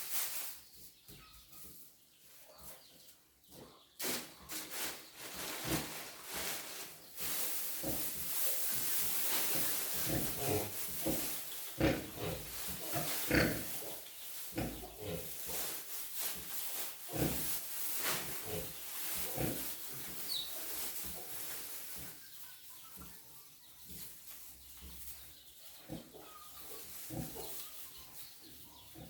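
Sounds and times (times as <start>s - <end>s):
pigs grunting: 10.0s - 15.7s, 17.1s - 17.6s, 25.8s - 27.6s.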